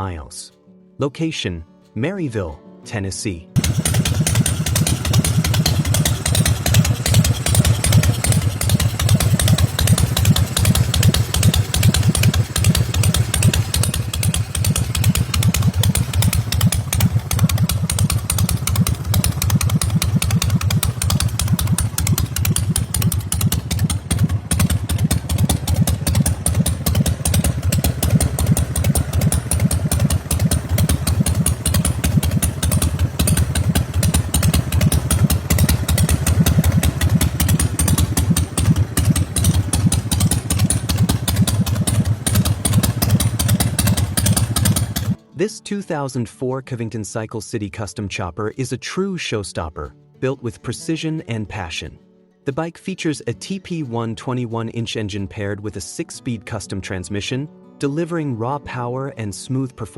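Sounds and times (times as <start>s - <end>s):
motorcycle engine idling: 3.6s - 45.2s.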